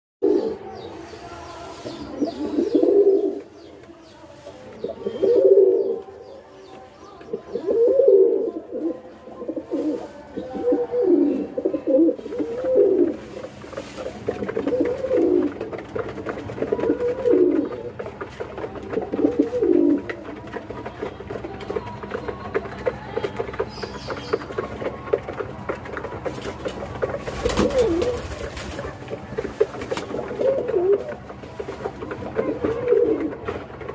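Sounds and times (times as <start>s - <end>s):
pigeon cooing: 0.2s - 3.6s, 4.8s - 6.3s, 7.2s - 20.6s, 23.3s - 33.9s.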